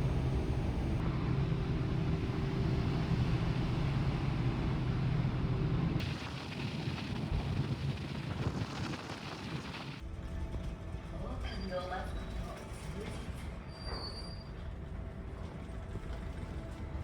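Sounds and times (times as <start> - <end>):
ship engines droning: 0.0 - 8.0.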